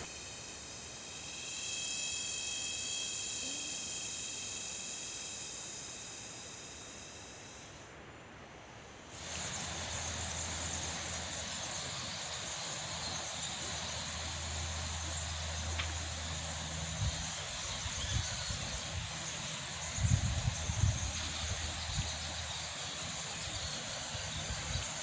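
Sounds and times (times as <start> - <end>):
high-pitched insect chorus: 0.0 - 8.1, 9.0 - 25.0
low steady rumble: 7.0 - 25.0.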